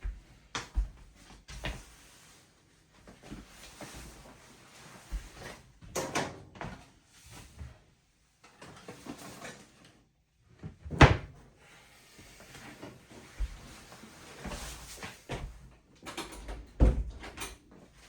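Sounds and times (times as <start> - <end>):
washing machine clunks and knocks: 10.8 - 11.4, 16.1 - 17.6.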